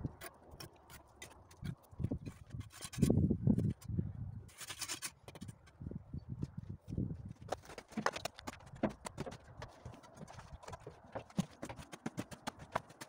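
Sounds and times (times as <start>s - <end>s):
trowel scraping mortar: 4.5s - 5.6s
dull thuds: 7.8s - 13.0s.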